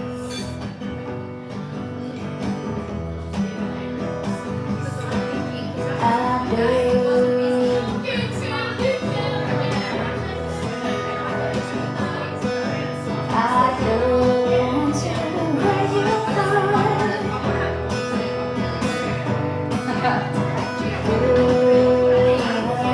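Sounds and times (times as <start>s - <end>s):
acoustic guitar strumming: 0.0s - 22.9s.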